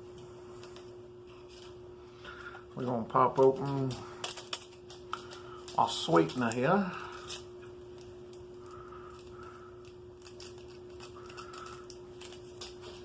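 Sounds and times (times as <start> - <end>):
steady hum: 0.0 - 13.0
packet tearing and rustling: 3.4 - 13.0.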